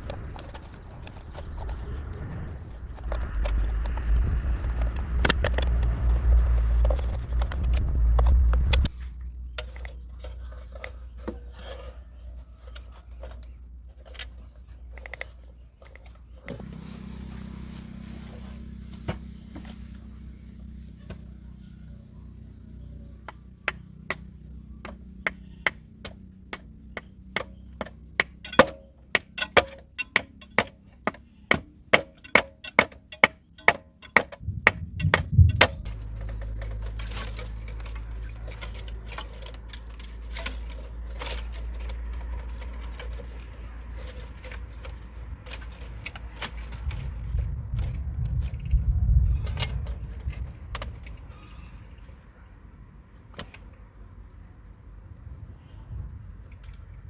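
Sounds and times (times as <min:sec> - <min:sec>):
low steady rumble: 0:00.0 - 0:29.2, 0:34.0 - 0:57.0
sharp blows on wood: 0:25.2 - 0:35.9.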